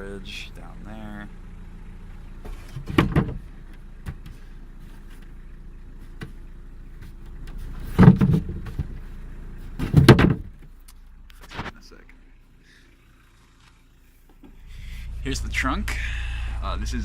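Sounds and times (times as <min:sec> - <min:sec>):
steady low hum: 0:00.0 - 0:17.0
van doors knocking and rattling: 0:02.3 - 0:05.3, 0:06.0 - 0:10.8.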